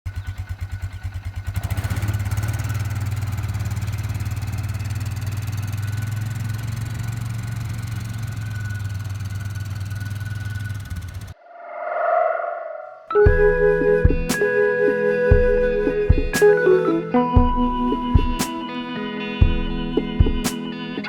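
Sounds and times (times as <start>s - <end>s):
engine cranking and idling: 0.1s - 11.4s.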